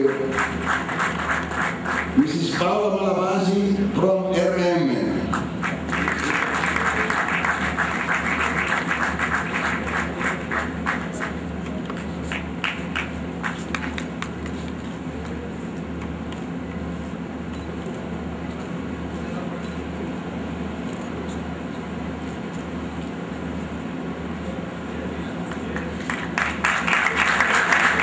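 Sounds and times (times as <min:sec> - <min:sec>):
audience applauding: 0:00.0 - 0:02.2, 0:05.3 - 0:11.4, 0:12.2 - 0:14.6, 0:25.5 - 0:28.0.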